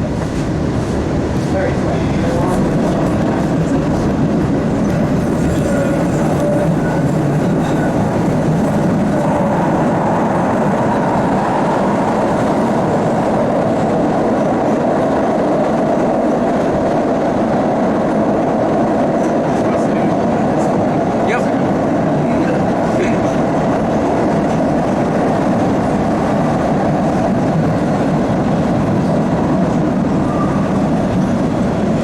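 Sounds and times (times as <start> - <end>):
subway car rolling rumble: 0.0 - 32.0.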